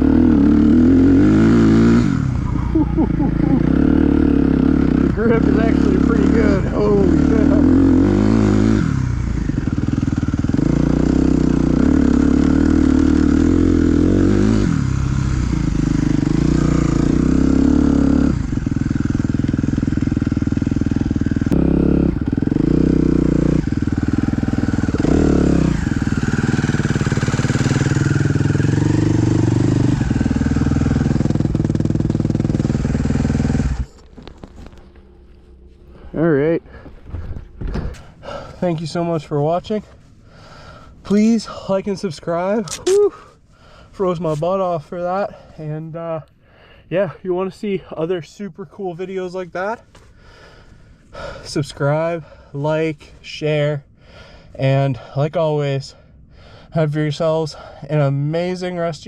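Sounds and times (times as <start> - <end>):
dirt bike engine accelerating: 0.0 - 43.1.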